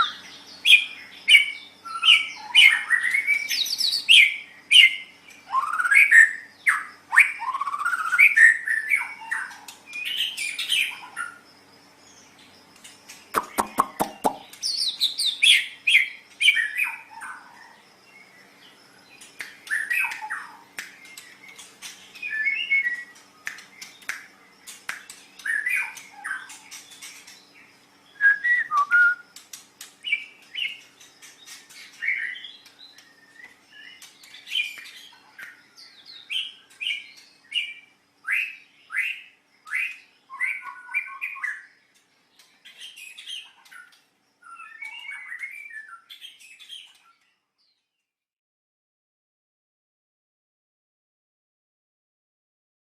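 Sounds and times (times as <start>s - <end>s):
bird singing whistled phrases: 0.0s - 11.0s, 22.2s - 23.2s, 28.1s - 29.3s, 35.8s - 41.7s, 44.5s - 46.9s.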